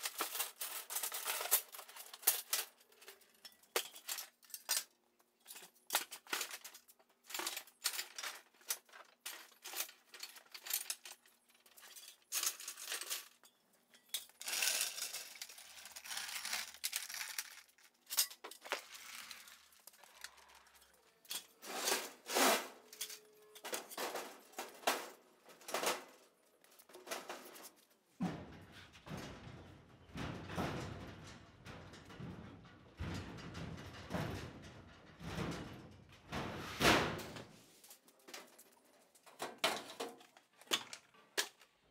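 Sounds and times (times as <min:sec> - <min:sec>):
metal tools clinking: 0:00.0 - 0:27.9.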